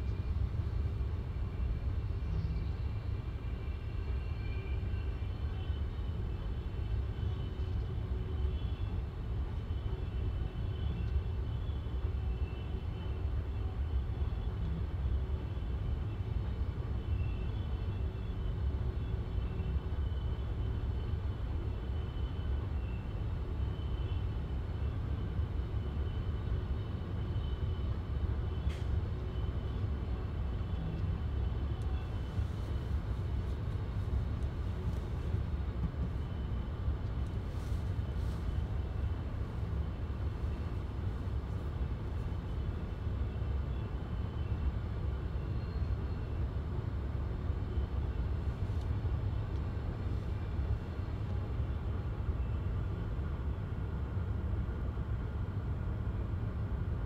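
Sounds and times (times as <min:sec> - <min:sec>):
train wheels rumbling on rail: 0:31.9 - 0:39.5.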